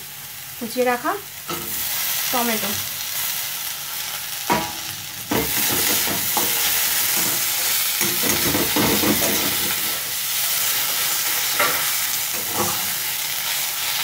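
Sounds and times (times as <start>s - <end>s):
food sizzling in hot oil: 0.0s - 14.0s
metal spatula scraping pan: 10.8s - 13.0s.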